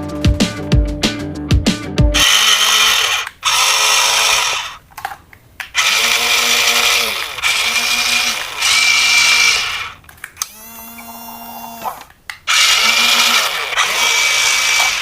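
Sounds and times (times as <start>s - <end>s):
toy electric motor whirring: 2.2s - 4.8s, 5.8s - 15.0s.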